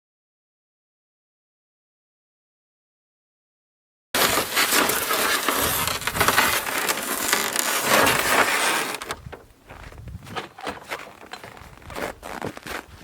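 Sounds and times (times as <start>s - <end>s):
dense crunching and crackling: 4.2s - 13.0s.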